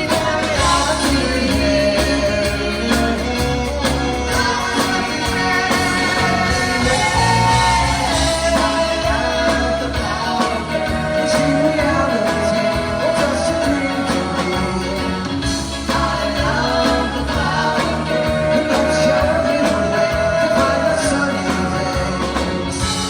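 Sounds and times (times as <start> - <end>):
live band playing pop song: 0.0 - 23.0
singers holding long notes: 0.0 - 23.0.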